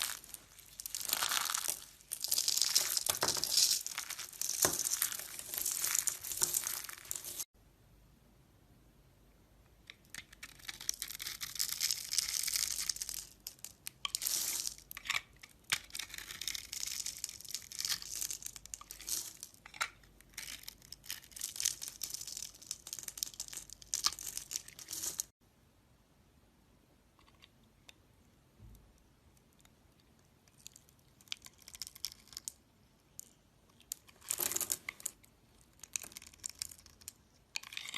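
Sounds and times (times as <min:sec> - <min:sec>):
knife scraping soap: 0:37.6 - 0:37.9.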